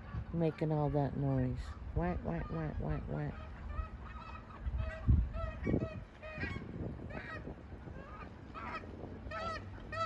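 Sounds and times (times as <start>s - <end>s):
geese honking: 0.0s - 10.0s.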